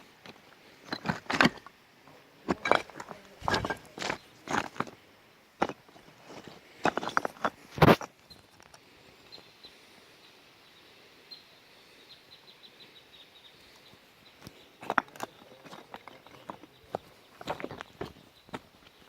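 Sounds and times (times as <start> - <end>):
twigs and leaves crunching: 2.5 - 5.0, 13.8 - 19.0.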